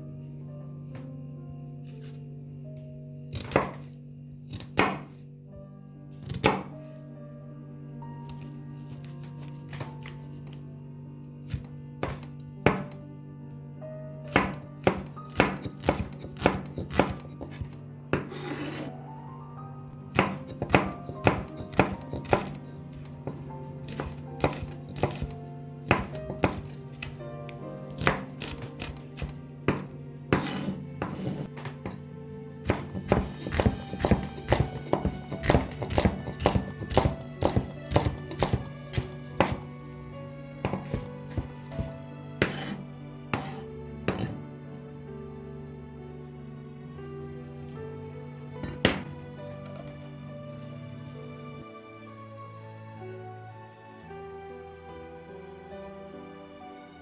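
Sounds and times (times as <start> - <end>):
background music: 0.0 - 57.0
knife scraping cutting board: 3.3 - 5.2, 6.2 - 6.7, 8.2 - 10.7, 11.4 - 13.0, 14.3 - 19.1, 20.1 - 27.2, 27.8 - 39.8, 40.6 - 44.5, 48.6 - 49.9
knife chopping vegetables: 3.3 - 5.3, 6.2 - 6.9, 8.2 - 10.6, 11.4 - 13.0, 14.2 - 19.0, 20.0 - 44.8, 48.6 - 50.0.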